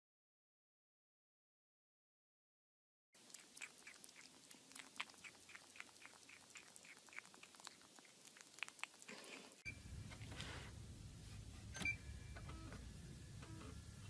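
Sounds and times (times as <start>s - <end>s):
animal chewing: 3.2s - 9.6s.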